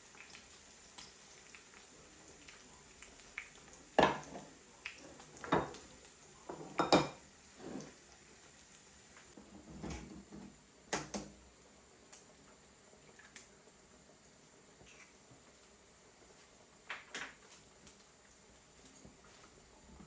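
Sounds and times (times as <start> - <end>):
dishes and cutlery clinking: 4.0 - 4.5, 5.4 - 5.9, 6.5 - 7.9.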